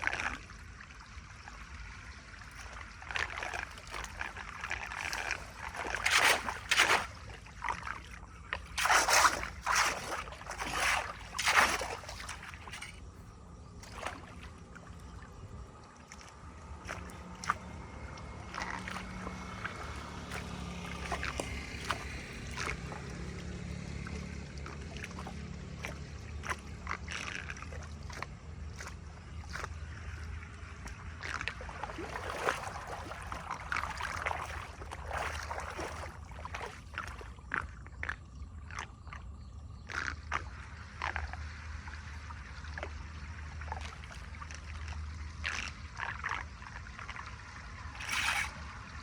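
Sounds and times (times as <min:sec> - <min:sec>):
water running and gurgling: 0:00.0 - 0:39.2, 0:39.8 - 0:49.0
water splashing and sloshing: 0:00.0 - 0:49.0.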